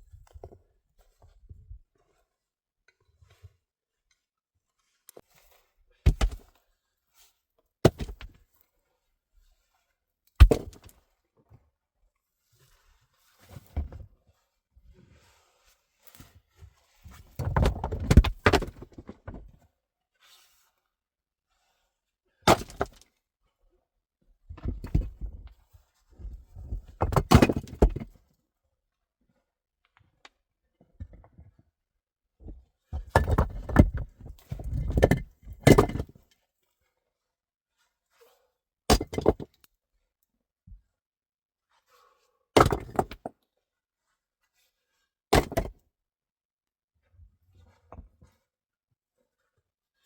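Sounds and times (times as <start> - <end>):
knocks and thuds of hard objects: 6.1 - 6.4, 7.8 - 8.3, 10.4 - 10.9, 17.4 - 19.4, 22.5 - 23.0, 27.0 - 28.1, 33.0 - 36.1, 38.9 - 39.5, 42.6 - 43.3, 45.4 - 45.7.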